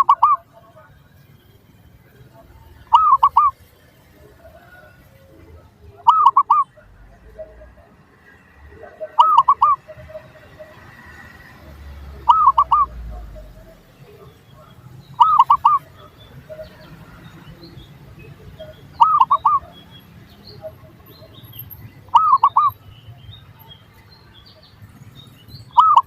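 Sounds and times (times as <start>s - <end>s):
dove cooing: 0.0s - 0.5s, 2.8s - 3.7s, 4.5s - 6.8s, 8.9s - 14.3s, 15.2s - 17.0s, 18.5s - 19.9s, 22.1s - 22.8s, 25.7s - 26.0s
faint small bird chirps: 2.9s - 3.7s, 6.1s - 6.8s, 9.2s - 10.2s, 12.2s - 13.1s, 14.2s - 26.0s.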